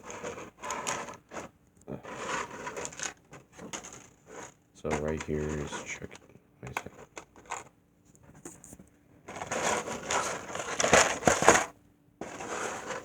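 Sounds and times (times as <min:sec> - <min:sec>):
packaging crinkling and rustling: 0:00.0 - 0:07.7, 0:09.3 - 0:13.0
packaging sharp cracks: 0:02.1 - 0:07.7, 0:09.3 - 0:13.0.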